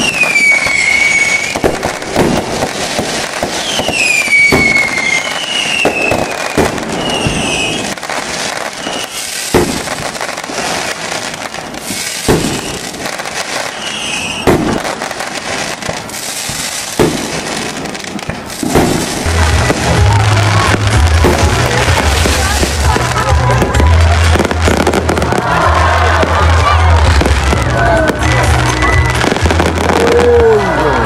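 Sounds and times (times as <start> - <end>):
firework whistles: 0.0 - 22.7
firework bangs: 0.0 - 31.0
firework crackle: 0.0 - 31.0.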